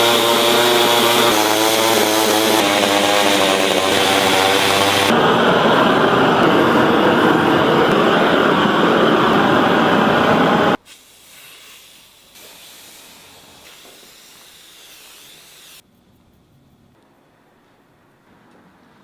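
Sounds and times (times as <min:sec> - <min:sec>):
chainsaw cutting wood: 0:00.0 - 0:05.2, 0:13.1 - 0:15.8
faint hiss: 0:10.8 - 0:16.9.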